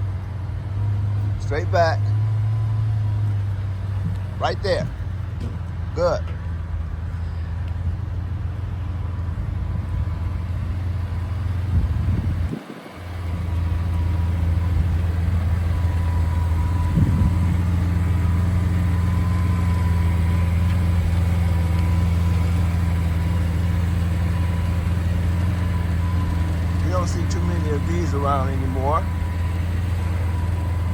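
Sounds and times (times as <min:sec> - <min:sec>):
vehicle engine idling: 0:00.0 - 0:30.9.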